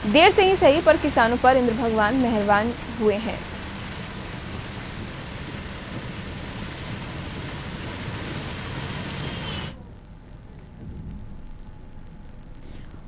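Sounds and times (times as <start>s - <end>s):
car road noise: 0.0s - 10.1s
faint low hum: 0.0s - 13.0s
heavy rain on a car: 0.0s - 13.0s.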